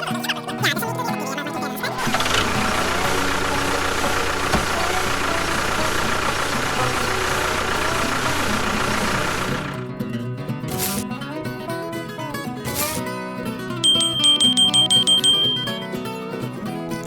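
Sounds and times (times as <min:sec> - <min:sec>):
music: 0:00.0 - 0:08.6, 0:09.5 - 0:17.0
engine idling: 0:02.0 - 0:10.0.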